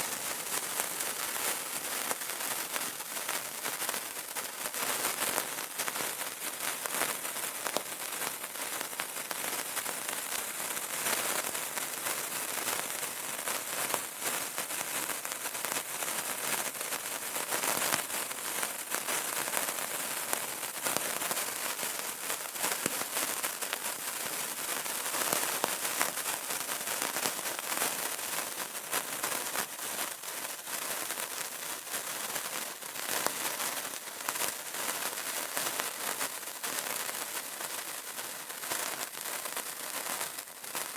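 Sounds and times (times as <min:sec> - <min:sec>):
candle crackling: 0:00.0 - 0:05.9, 0:19.0 - 0:40.9.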